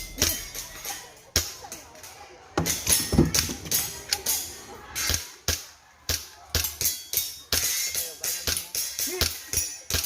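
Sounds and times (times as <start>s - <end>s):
music with percussive beat: 0.0s - 1.6s.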